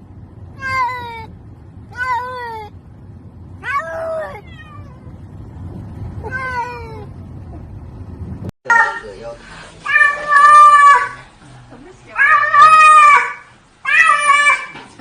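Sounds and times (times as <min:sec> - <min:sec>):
cat meowing: 0:03.6 - 0:05.2, 0:06.2 - 0:07.1, 0:09.8 - 0:11.2, 0:12.2 - 0:14.8.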